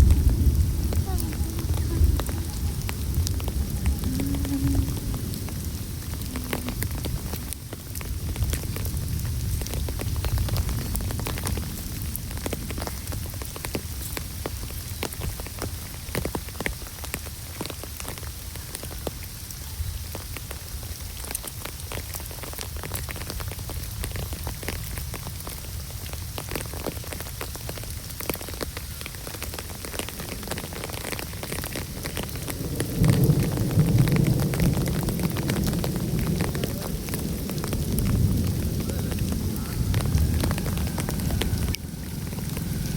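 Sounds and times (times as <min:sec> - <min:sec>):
low rumble: 0:00.0 - 0:12.3, 0:33.0 - 0:42.9
rain falling: 0:00.0 - 0:42.9
raindrops ticking on surfaces: 0:00.0 - 0:42.9.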